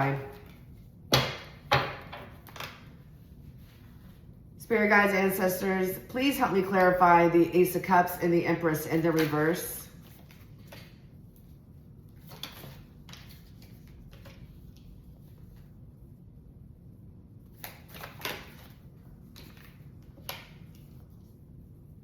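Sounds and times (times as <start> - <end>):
low room hum: 0.0 - 22.0
cards slapping and rustling: 9.0 - 15.8, 17.5 - 21.3.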